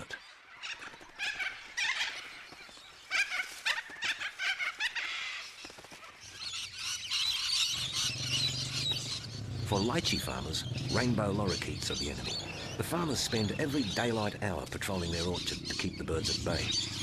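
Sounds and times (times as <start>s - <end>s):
cockatoo flock screeching: 0.6s - 2.5s, 3.1s - 12.8s.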